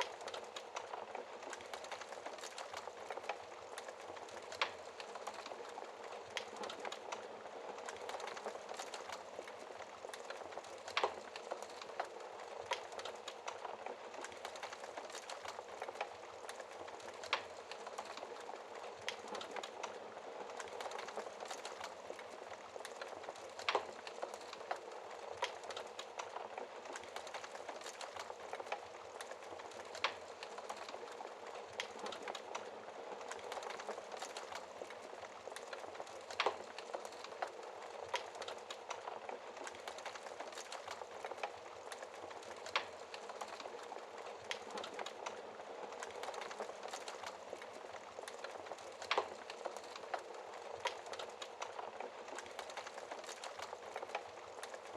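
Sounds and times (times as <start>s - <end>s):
burning log popping: 0.0s - 54.9s
fire crackling: 0.0s - 54.9s.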